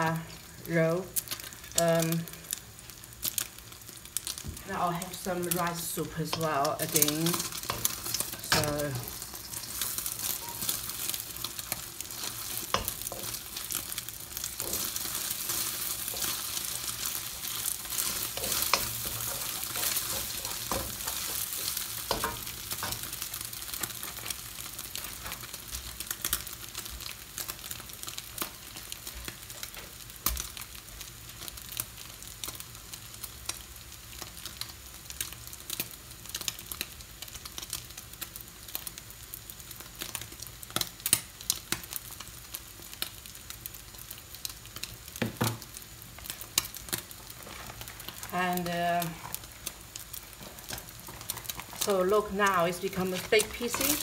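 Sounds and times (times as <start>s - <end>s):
eggs sizzling in a wok: 0.0s - 54.0s
wooden spoon scraping a pan: 5.7s - 26.0s, 47.2s - 54.0s.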